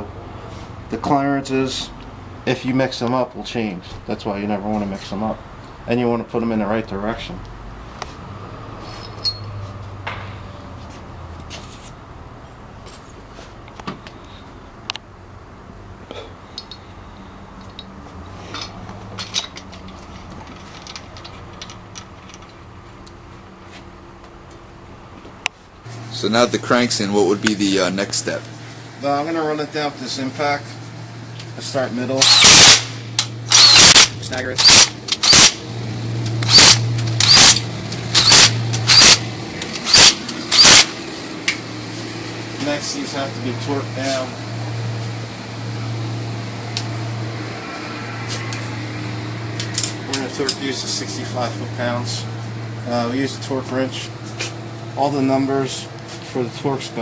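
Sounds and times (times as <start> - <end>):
steady low hum: 0.0 - 57.0
metallic clinks of engine parts: 8.8 - 10.4, 16.3 - 23.7
impact wrench bursts: 32.2 - 35.7, 36.3 - 41.0.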